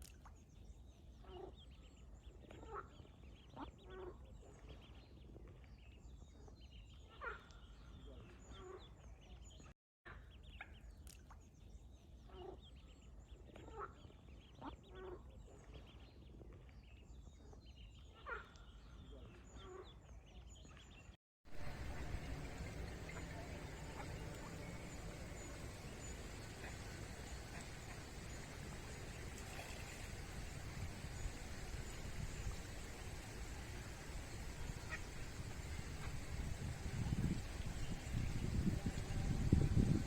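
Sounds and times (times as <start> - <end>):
ducks quacking: 21.5 - 37.1
low steady rumble: 21.5 - 40.0.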